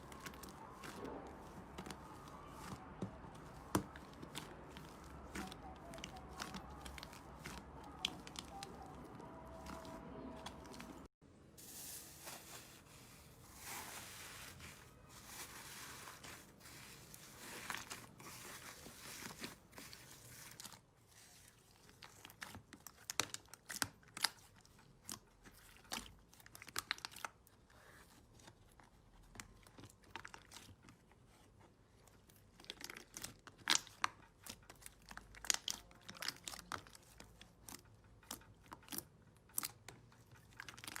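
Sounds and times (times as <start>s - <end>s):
slime crackling and popping: 32.5s - 41.0s.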